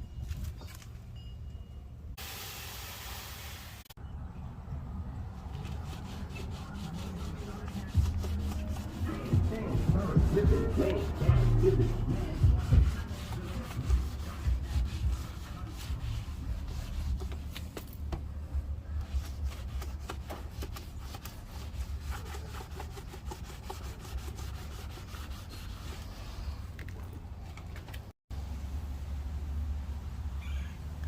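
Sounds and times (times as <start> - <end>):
pad scrubbing car paint: 5.5 - 18.0, 19.0 - 26.5.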